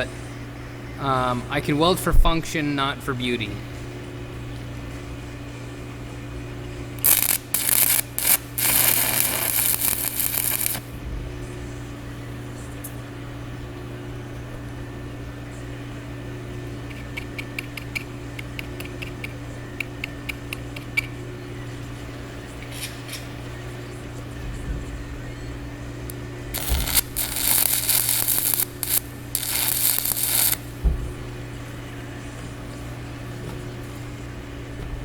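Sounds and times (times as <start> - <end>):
steady low hum: 0.0 - 35.0
arc welding crackling: 7.0 - 11.0, 26.0 - 31.1.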